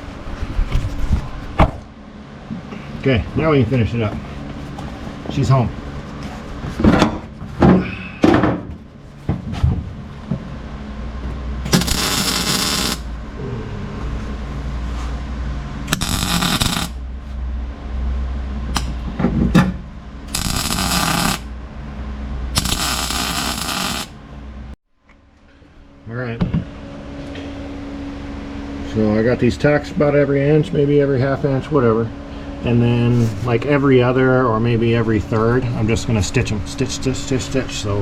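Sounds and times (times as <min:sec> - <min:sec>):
low hum: 0:09.9 - 0:35.4
welder crackling: 0:11.7 - 0:13.1, 0:15.9 - 0:17.0, 0:18.8 - 0:19.0, 0:20.3 - 0:21.5, 0:22.6 - 0:24.2.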